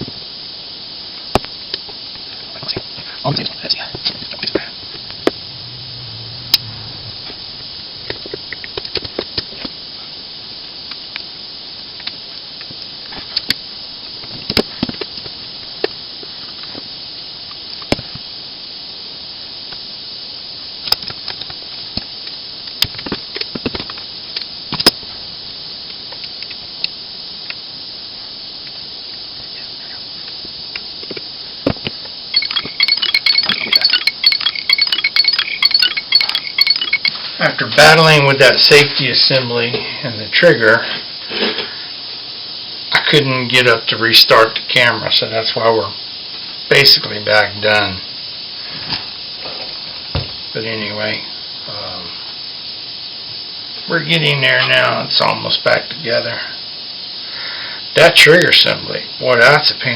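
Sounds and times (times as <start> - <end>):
steady high hiss: 0.0 - 59.9
ringing metallic clinks: 4.5 - 7.6, 32.3 - 37.3
metal parts and tools clicking: 32.4 - 37.2.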